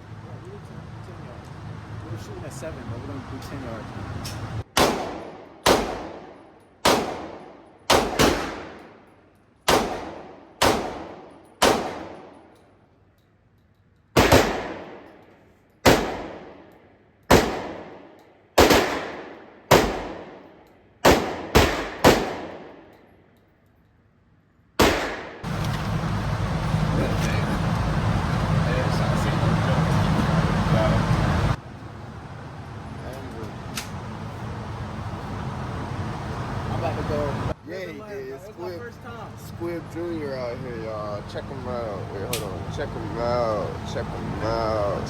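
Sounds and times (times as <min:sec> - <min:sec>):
rifle shots with echo: 0:04.7 - 0:12.6, 0:14.2 - 0:15.2, 0:15.8 - 0:16.7, 0:17.3 - 0:22.9, 0:24.8 - 0:25.5.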